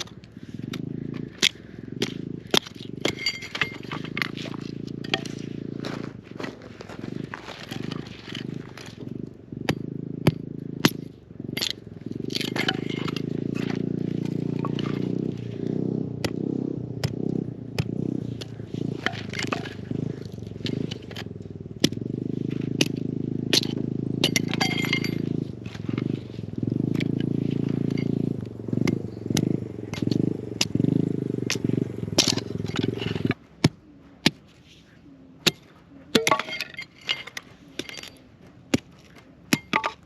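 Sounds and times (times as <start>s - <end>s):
steady low rumble: 0.0s - 33.7s.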